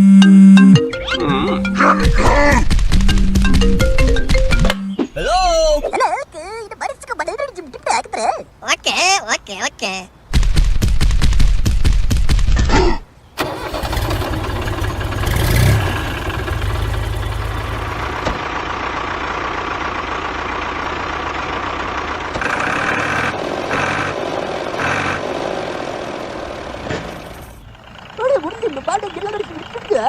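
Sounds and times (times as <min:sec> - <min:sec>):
small engine chugging: 0:13.4 - 0:30.0.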